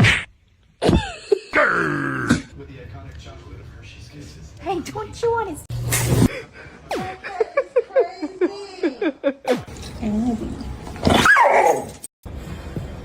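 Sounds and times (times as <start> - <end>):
dog whining: 10.0 - 12.0
dog yipping: 11.0 - 12.0.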